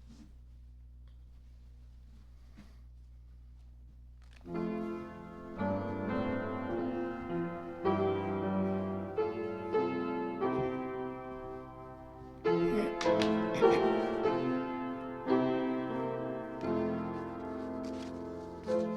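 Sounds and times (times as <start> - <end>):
faint low hum: 0.0 - 18.9
slow keyboard chords: 4.5 - 18.9.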